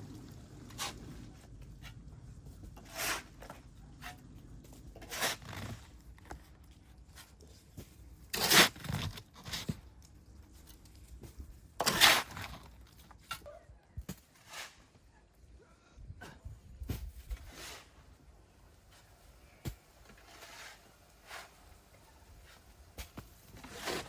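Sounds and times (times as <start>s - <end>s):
faint low rumble: 0.0s - 5.0s
short scraping crunching noises: 5.0s - 6.5s, 7.2s - 9.8s, 11.8s - 13.4s, 23.0s - 24.0s.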